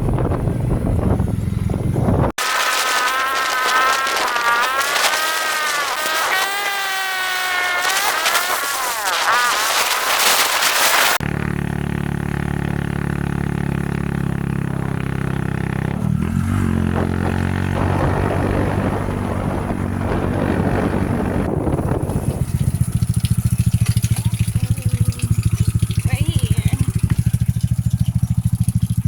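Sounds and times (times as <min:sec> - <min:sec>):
small engine chugging: 0:00.1 - 0:18.1, 0:21.2 - 0:29.0.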